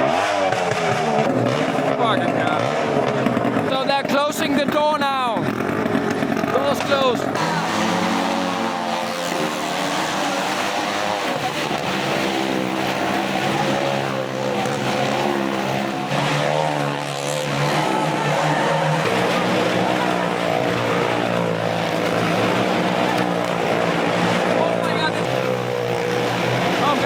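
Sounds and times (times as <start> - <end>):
car engine revving: 0.0 - 27.0
motorbike engines revving: 0.0 - 27.0.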